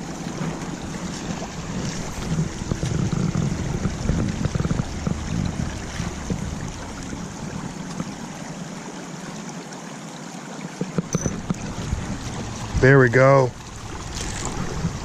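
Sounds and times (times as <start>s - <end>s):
wind rumble on microphone: 0.0s - 8.8s, 10.8s - 15.0s
creek water rushing: 0.0s - 15.0s.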